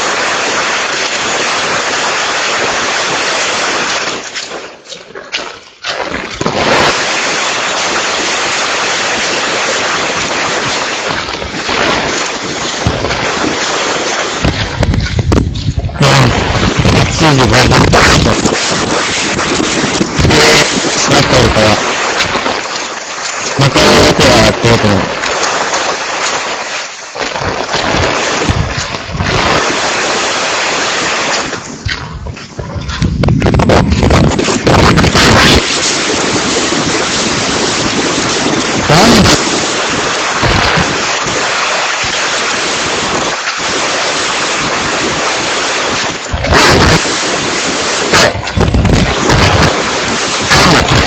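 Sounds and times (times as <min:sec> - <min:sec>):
wind and rain on microphone: 0:00.0 - 0:51.0.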